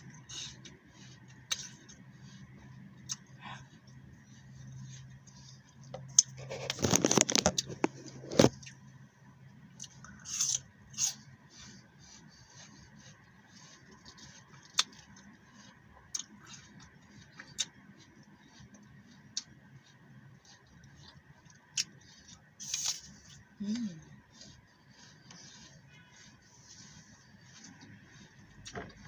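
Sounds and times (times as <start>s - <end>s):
apple crunching while chewed: 0.0s - 3.7s, 5.9s - 8.8s, 13.5s - 19.6s, 20.4s - 26.3s.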